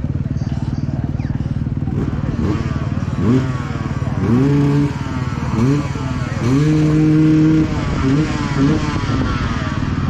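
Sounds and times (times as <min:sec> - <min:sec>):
racing motorcycle engines revving: 0:00.0 - 0:10.0
rumble of other motorcycles: 0:00.0 - 0:10.0.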